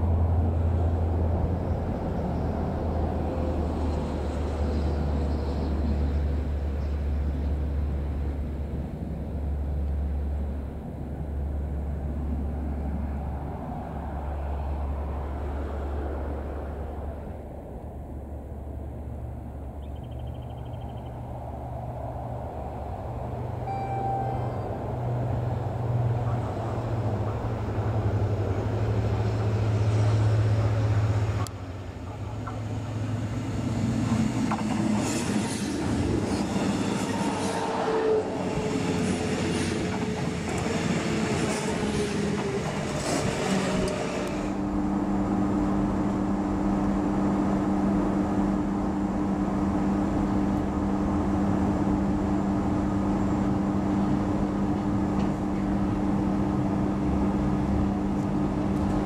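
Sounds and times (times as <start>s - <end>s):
train carriage interior hum: 0.0s - 59.0s
train wheel and rail noise: 0.0s - 59.0s
electric train humming: 21.2s - 59.0s.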